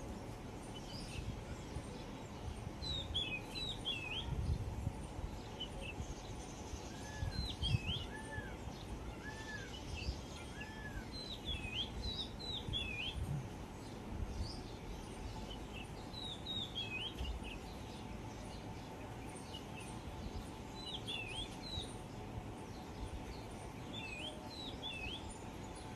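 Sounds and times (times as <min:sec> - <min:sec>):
bird giving low calls: 0:06.9 - 0:13.5.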